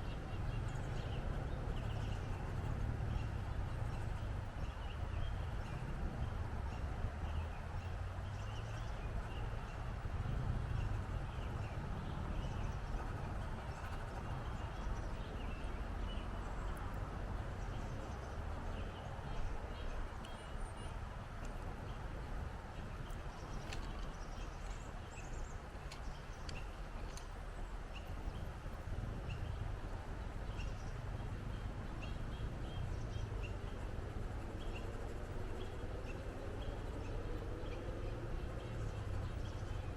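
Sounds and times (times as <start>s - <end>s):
wind across microphone: 0.0s - 39.9s.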